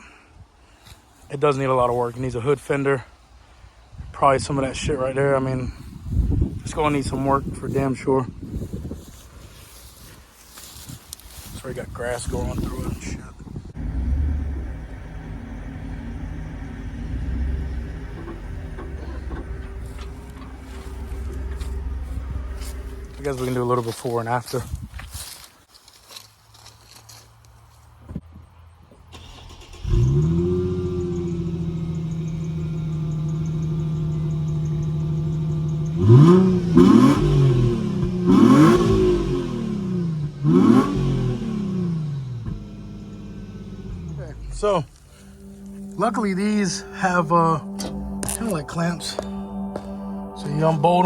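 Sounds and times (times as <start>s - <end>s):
car engine idling: 11.3s - 24.7s, 28.3s - 51.0s.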